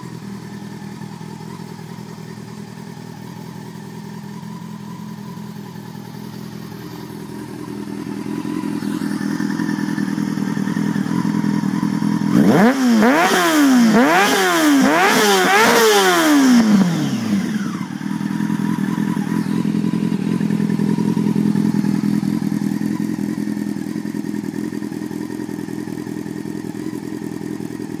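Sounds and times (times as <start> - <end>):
motorcycle engine idling: 0.0 - 28.0
engine throttle blips: 6.3 - 23.9.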